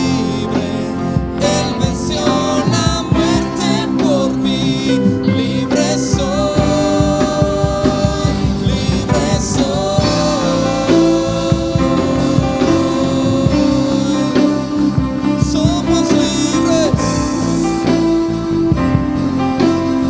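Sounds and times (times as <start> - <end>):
guitar: 0.0 - 20.0
person singing long notes: 0.0 - 20.0
worship band music: 0.0 - 20.0.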